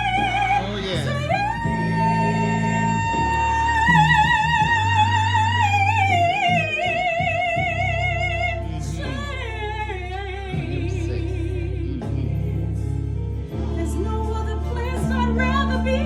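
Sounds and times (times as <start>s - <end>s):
instrumental accompaniment with bass: 0.0s - 16.0s
person singing gospel with vibrato: 0.0s - 16.0s.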